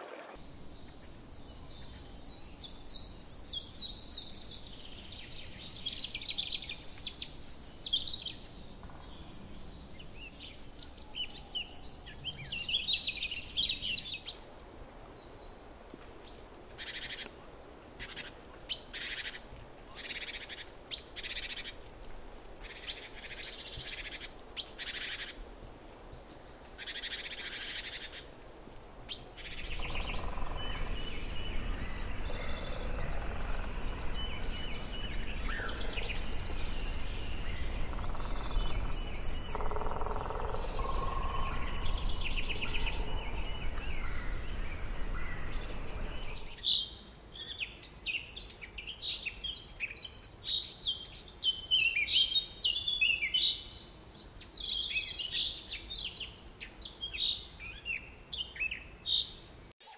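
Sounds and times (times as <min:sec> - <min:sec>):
birds twittering trills: 0:00.4 - 0:59.9
steady rushing noise: 0:28.2 - 0:39.6, 0:40.5 - 0:46.6
sharp repeated bird calls: 0:29.1 - 0:46.5.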